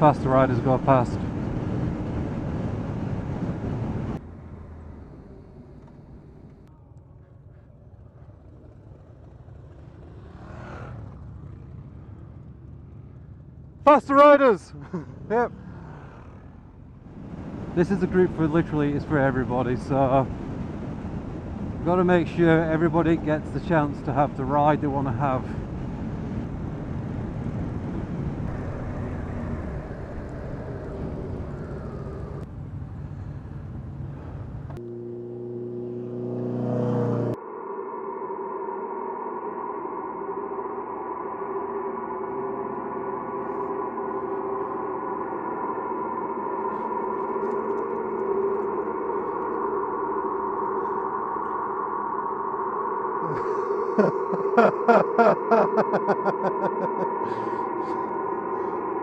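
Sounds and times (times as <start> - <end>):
wind rush: 0.0 - 4.2, 17.1 - 34.0
motorcycles passing: 0.0 - 37.4, 53.2 - 59.0
low rumble: 14.7 - 34.8, 37.4 - 59.0
steady drone with held tones: 34.8 - 59.0.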